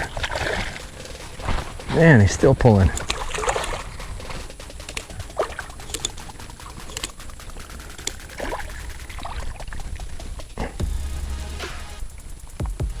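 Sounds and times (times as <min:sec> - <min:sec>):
water splashing and dripping: 0:00.0 - 0:13.0
small clicks and knocks: 0:04.6 - 0:09.0.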